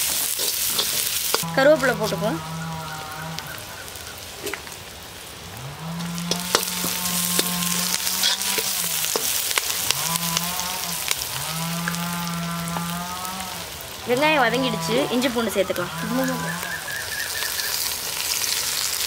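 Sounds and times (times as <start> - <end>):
onions sizzling in hot oil: 0.0 - 19.0
low droning tones: 5.4 - 16.7.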